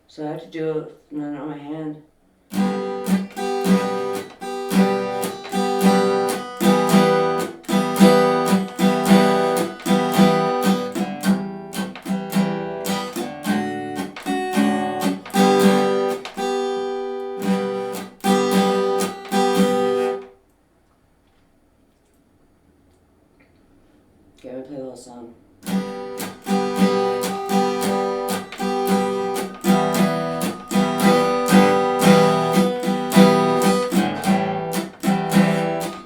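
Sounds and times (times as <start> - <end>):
guitar strumming chords: 2.5 - 20.4, 25.6 - 36.0
hand-muted guitar hits: 2.6 - 16.7, 25.7 - 36.0.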